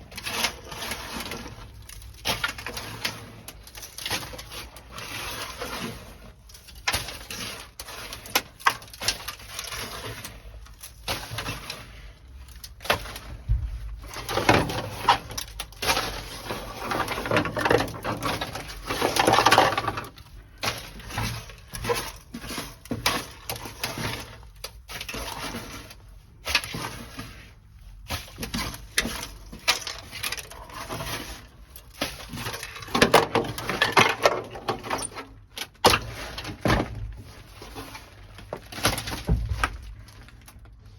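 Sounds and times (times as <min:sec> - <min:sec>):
brittle pieces clattering: 0:14.0 - 0:25.9, 0:28.3 - 0:40.9.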